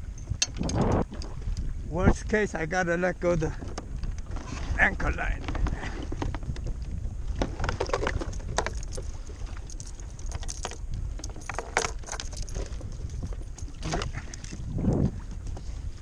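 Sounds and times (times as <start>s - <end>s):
wind rumble on microphone: 0.0s - 16.0s
fishing gear clicking and jingling: 7.5s - 14.7s.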